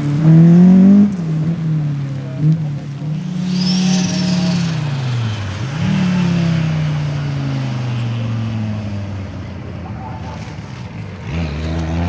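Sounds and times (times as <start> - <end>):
rally car engine running hard: 0.0 - 12.0
faint high whistle: 3.2 - 6.7.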